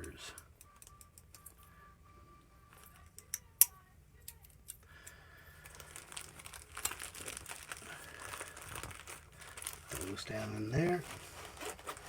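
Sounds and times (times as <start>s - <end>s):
plastic packaging crinkling: 5.6s - 12.0s.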